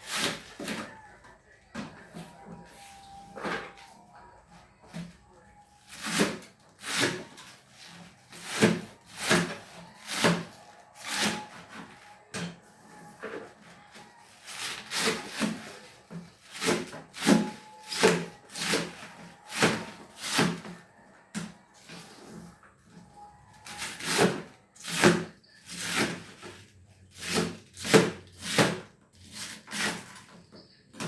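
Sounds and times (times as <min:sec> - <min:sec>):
knife slicing cabbage on board: 0:05.9 - 0:11.5, 0:27.1 - 0:30.0.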